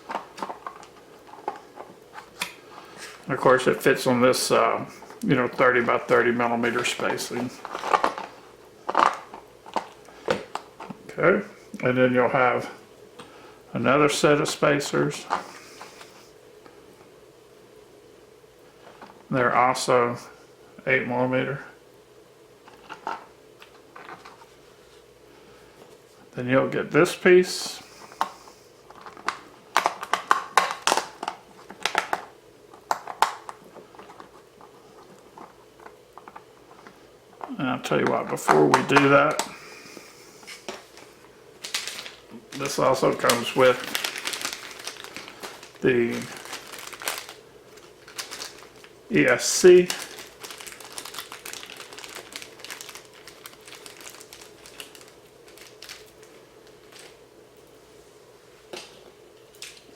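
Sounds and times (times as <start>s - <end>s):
electronic parts crinkling and clicking: 0.0s - 4.0s, 5.0s - 11.1s, 22.6s - 24.6s, 27.8s - 57.7s
sharp clicks and rustles: 5.0s - 11.0s.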